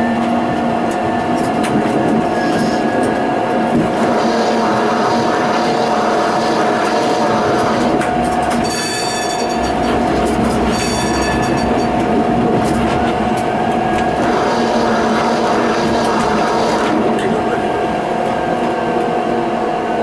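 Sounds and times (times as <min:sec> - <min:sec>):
tram running with whine: 0:00.0 - 0:20.0
high wheel squeal: 0:02.3 - 0:03.0, 0:08.6 - 0:12.0.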